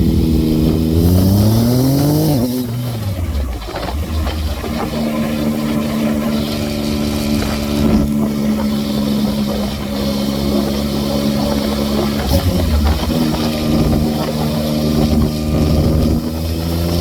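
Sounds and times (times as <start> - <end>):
motorcycle engine running: 0.0 - 17.0
wind noise: 0.0 - 17.0.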